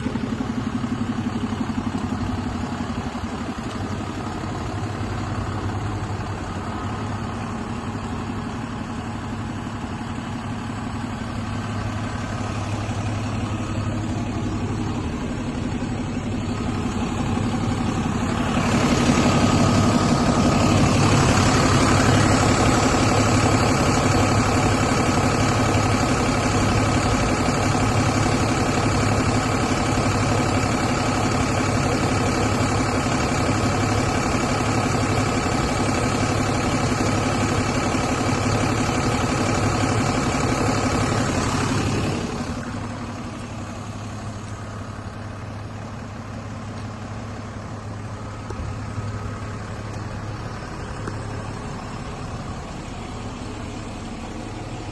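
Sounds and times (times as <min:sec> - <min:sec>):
diesel truck engine idling: 0:00.0 - 0:54.9.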